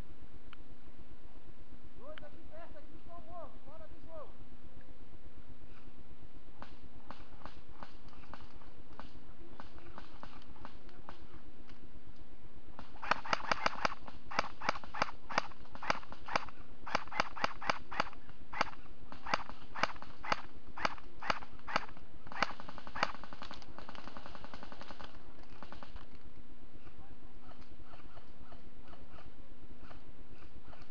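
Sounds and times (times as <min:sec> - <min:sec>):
airsoft gun shots: 0:12.8 - 0:26.0.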